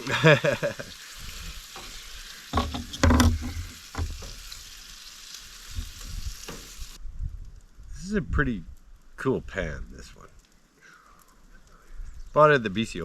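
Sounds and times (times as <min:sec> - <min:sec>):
food sizzling in a frying pan: 0:00.0 - 0:07.0
utensil scraping a pan: 0:01.7 - 0:04.6.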